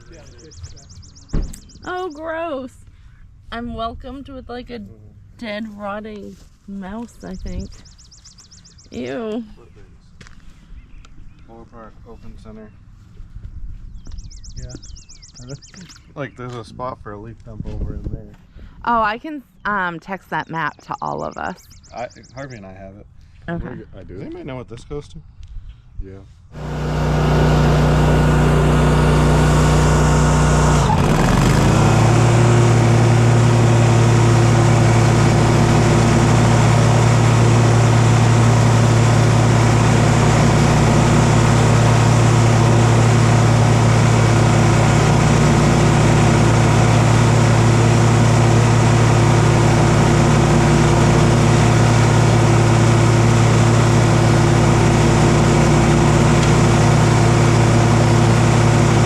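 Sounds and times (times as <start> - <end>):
engine revving: 0.0 - 1.8, 26.6 - 59.0.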